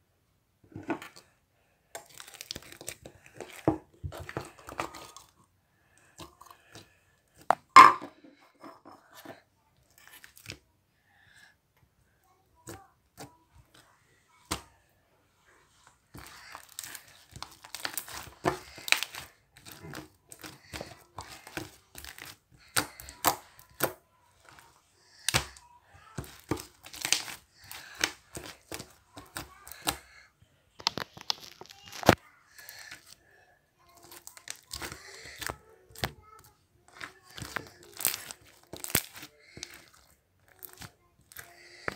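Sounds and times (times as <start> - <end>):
slime popping and crackling: 2.0 - 3.7, 16.2 - 23.9, 26.2 - 30.1, 30.8 - 33.0, 34.0 - 41.9.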